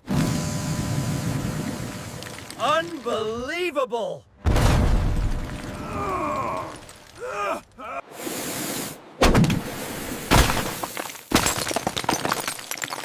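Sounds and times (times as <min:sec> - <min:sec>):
heavy cartoon crashes: 0:04.4 - 0:06.0
clattering breaking debris: 0:04.5 - 0:07.3, 0:10.3 - 0:13.0
short hiss: 0:08.2 - 0:09.0.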